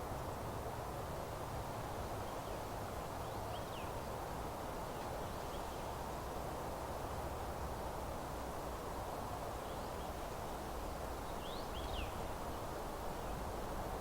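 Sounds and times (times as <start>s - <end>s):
steady rushing hiss: 0.0s - 14.0s
faint songbird chirps: 2.2s - 4.2s, 4.9s - 6.1s, 9.6s - 10.4s, 11.2s - 13.5s.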